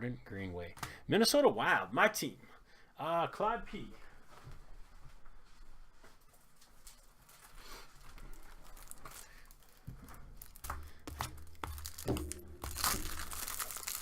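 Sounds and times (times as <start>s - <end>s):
plastic wrapping crinkling: 6.2s - 14.0s.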